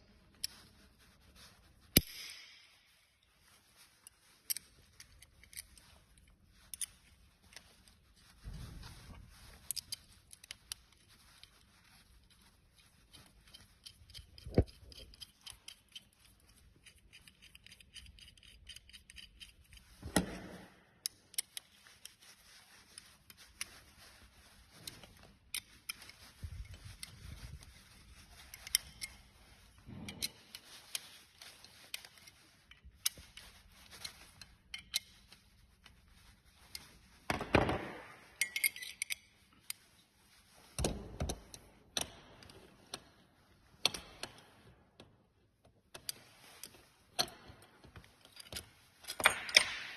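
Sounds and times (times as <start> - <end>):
metal parts and tools clicking: 4.0 - 8.1, 9.5 - 20.4, 21.0 - 22.2, 24.7 - 36.0, 36.6 - 40.0, 43.8 - 44.7, 45.9 - 49.9.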